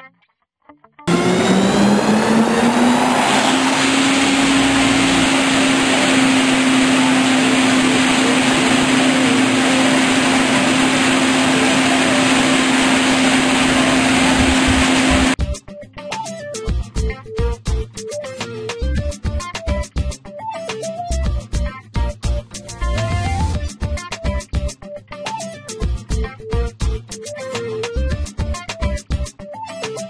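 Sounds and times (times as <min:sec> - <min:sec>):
truck-mounted vacuum rushing: 0:01.1 - 0:15.4.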